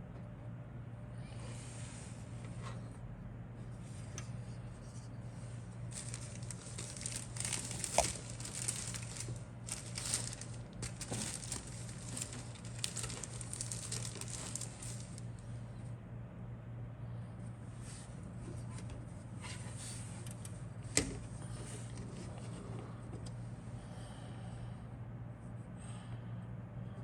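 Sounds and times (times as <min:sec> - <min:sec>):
steady low hum: 0:00.0 - 0:27.0
packaging crinkling: 0:05.8 - 0:15.4.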